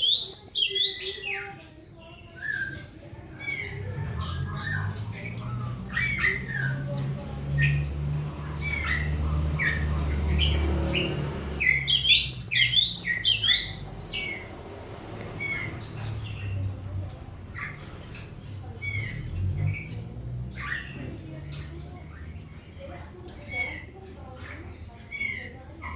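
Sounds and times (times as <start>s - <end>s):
bird chirping and chattering: 0.0s - 25.9s.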